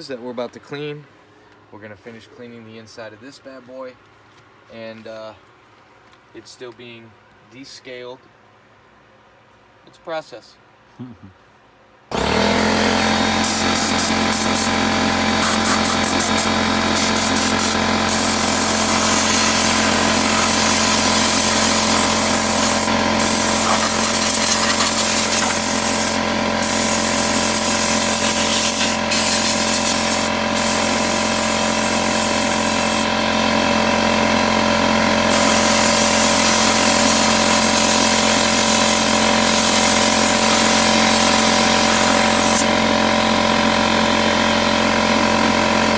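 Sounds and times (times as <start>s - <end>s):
small pump humming: 12.1s - 45.9s.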